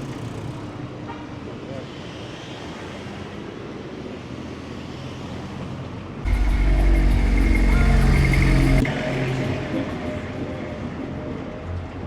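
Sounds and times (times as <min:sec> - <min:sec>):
city street traffic: 0:00.0 - 0:12.0
loud deep multi-tone sound: 0:06.2 - 0:10.7.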